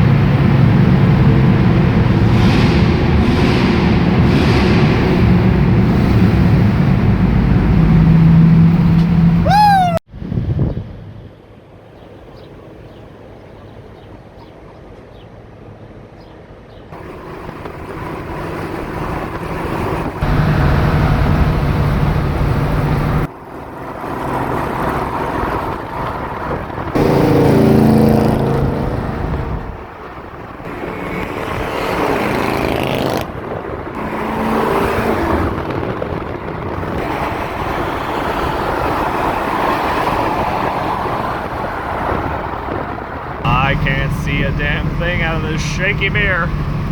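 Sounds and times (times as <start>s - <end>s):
car engine revving: 0.0s - 9.5s, 18.0s - 23.3s, 26.8s - 29.8s, 30.6s - 41.6s, 43.5s - 46.9s.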